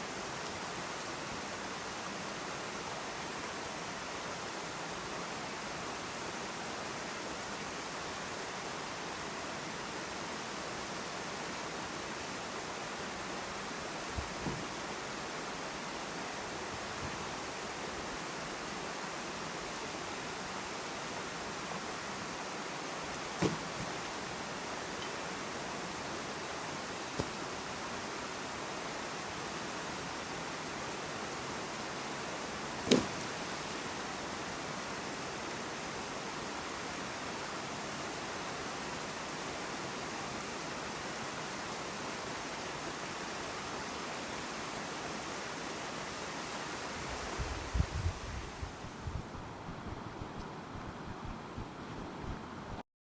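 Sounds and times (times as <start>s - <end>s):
creek water rushing over stones: 0.0s - 52.8s
sharp knock: 23.4s - 23.9s
soft low thumps: 47.7s - 52.8s.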